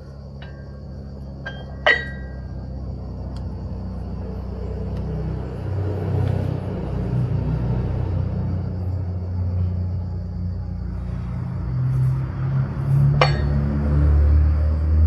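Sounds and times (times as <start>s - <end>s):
vehicle engine rumble: 0.0s - 15.0s
metallic clank of dumbbells: 1.5s - 2.5s, 13.2s - 13.6s.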